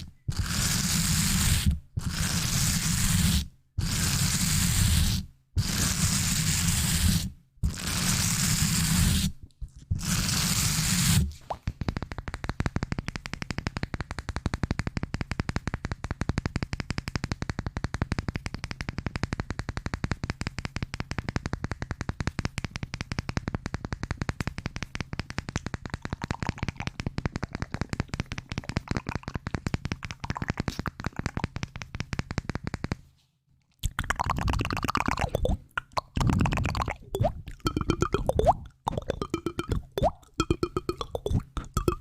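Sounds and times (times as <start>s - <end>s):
rapid tapping: 34.1s - 42.0s.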